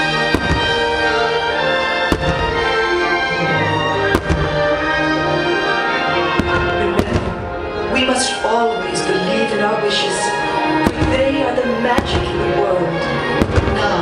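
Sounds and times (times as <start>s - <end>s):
fireworks show music: 0.0s - 14.0s
firework shells bursting: 0.2s - 3.2s, 4.0s - 5.1s.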